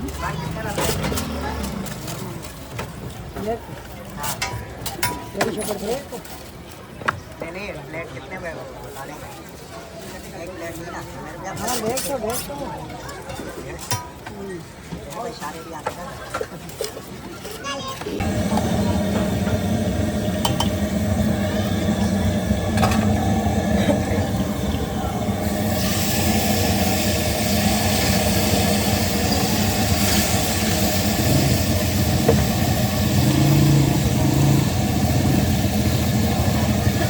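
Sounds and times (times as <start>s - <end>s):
traffic engines: 0.0s - 3.8s, 18.1s - 37.0s
pitched engine note: 18.2s - 37.0s.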